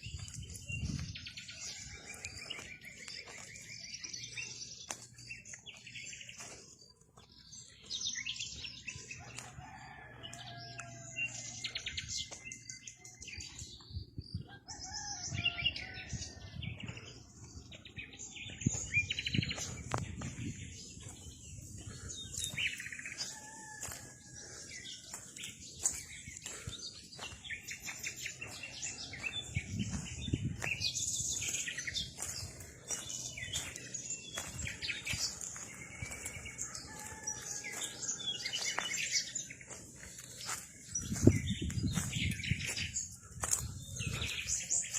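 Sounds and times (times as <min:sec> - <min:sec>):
birds chirping and singing: 0:00.0 - 0:44.9.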